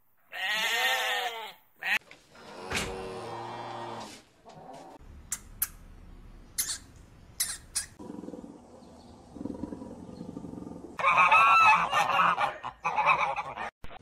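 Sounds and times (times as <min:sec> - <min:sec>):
goose honking: 0:11.0 - 0:13.7.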